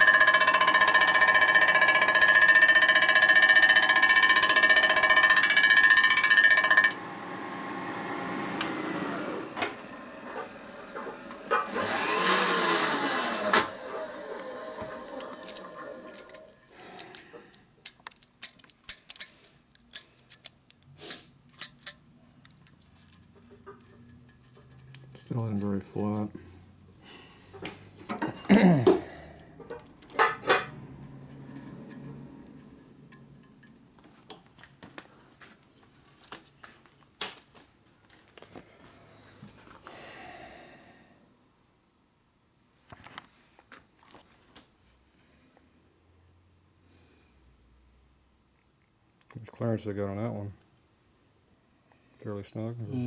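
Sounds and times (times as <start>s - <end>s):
metal tools clicking and knocking: 0.0s - 7.0s, 14.9s - 26.3s, 29.4s - 34.4s
machine tool spindle winding down: 0.0s - 16.6s.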